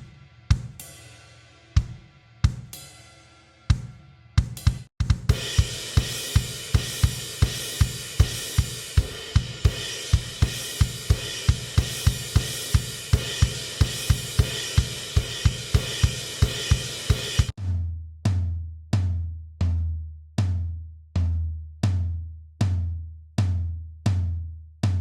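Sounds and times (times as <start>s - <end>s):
cymbal and hi-hat wash: 0.0s - 3.4s, 4.6s - 17.5s
kick drum beat: 3.7s - 17.6s.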